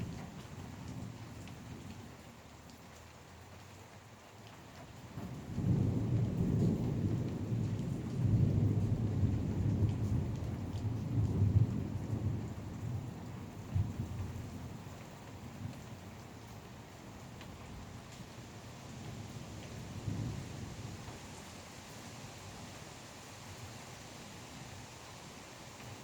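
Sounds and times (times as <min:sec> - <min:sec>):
rain falling: 0:00.0 - 0:26.0
thunder rumbling: 0:05.2 - 0:14.4.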